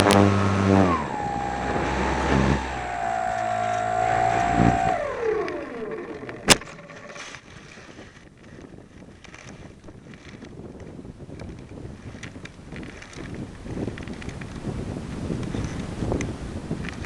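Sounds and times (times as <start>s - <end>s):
electric motor and propeller whining: 0.0s - 10.6s
wind noise: 0.0s - 17.0s
sharp click: 3.4s - 7.4s.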